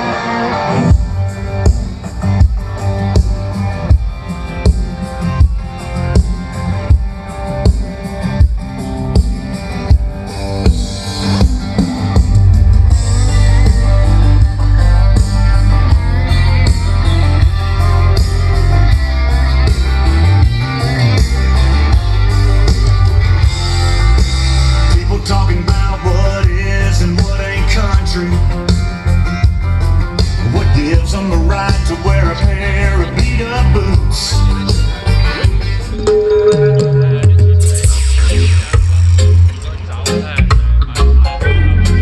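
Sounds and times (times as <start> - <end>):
rock music through loudspeakers: 0.0 - 42.0
heavy sustained bass: 11.4 - 39.8.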